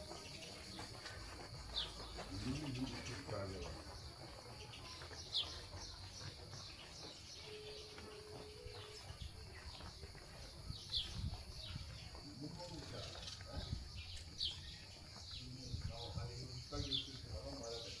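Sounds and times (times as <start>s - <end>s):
bird chirps: 0.0s - 18.0s
faint outdoor ambience: 0.0s - 18.0s.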